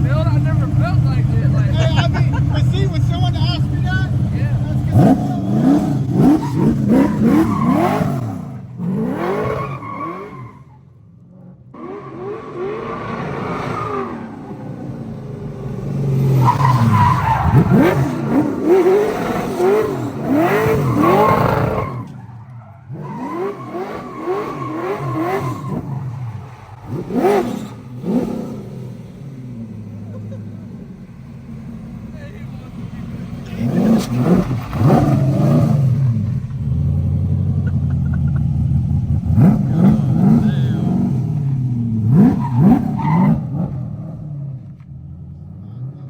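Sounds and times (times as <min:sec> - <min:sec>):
car engine revving: 0:00.0 - 0:46.0
tyre squeal: 0:09.3 - 0:10.8, 0:16.3 - 0:27.9.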